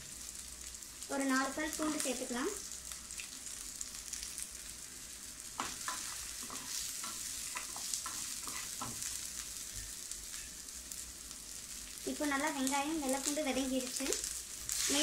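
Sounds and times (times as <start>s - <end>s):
shallots sizzling in hot oil: 0.0s - 15.0s
wooden spatula tapping and scraping: 5.6s - 9.1s.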